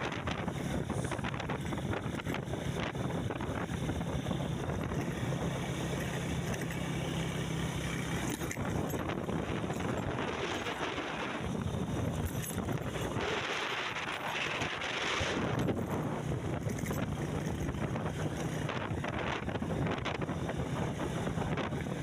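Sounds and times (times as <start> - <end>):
wind noise: 0.0 - 6.9, 7.7 - 22.0
vehicle engine humming: 0.0 - 22.0
small rattles and knocks: 5.9 - 6.9, 7.9 - 10.8, 12.1 - 14.6, 15.5 - 18.7.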